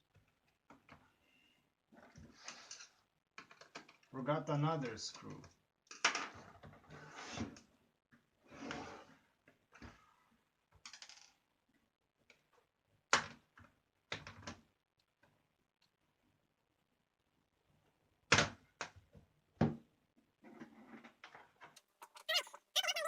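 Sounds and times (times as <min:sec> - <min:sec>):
screwdriver scraping plastic case: 0:21.8 - 0:23.0.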